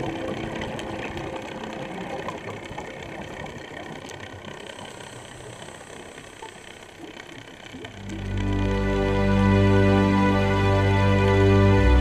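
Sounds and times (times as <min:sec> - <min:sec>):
underwater bubbles crackling: 0:00.0 - 0:09.2.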